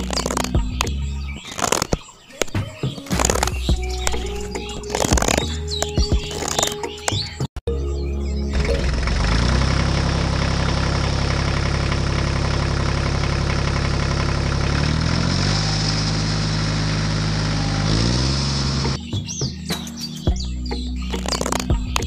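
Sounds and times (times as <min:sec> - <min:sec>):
tractor engine idling: 0:00.0 - 0:02.0, 0:08.3 - 0:19.0, 0:20.7 - 0:22.0.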